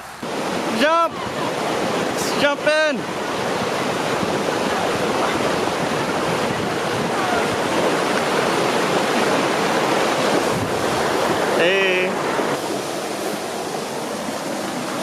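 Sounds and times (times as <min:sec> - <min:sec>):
water rushing: 0:00.0 - 0:15.0.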